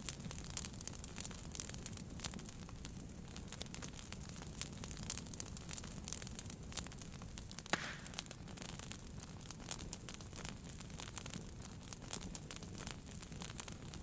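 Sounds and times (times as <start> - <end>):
wood fire crackling: 0.0 - 14.0
loud fire pop: 7.6 - 8.7.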